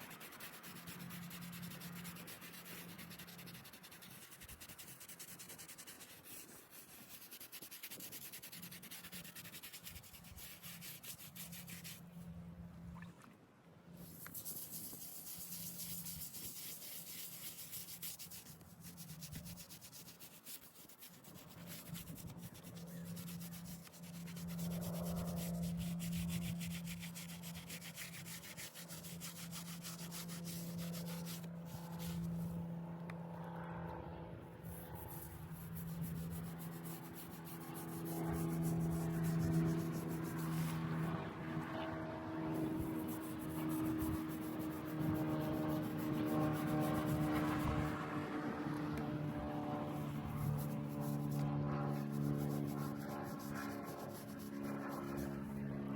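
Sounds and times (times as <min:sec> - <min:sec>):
scrubbing stone: 0:00.0 - 0:12.1, 0:14.0 - 0:32.5
low steady hum: 0:00.0 - 0:55.9.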